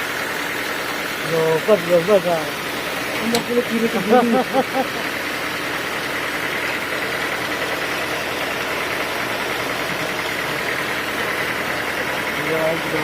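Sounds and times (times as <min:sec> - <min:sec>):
sawmill machinery drone: 0:00.0 - 0:13.0.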